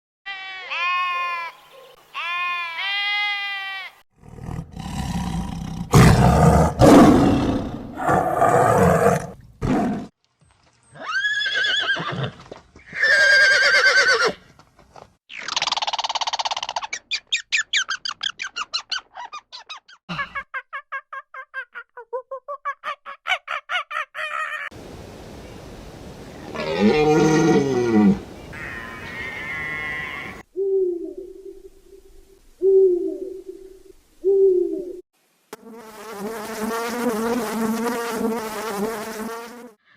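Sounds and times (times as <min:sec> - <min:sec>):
loud rough animal roars: 0:04.2 - 0:10.1
wavering animal calls: 0:26.4 - 0:35.0.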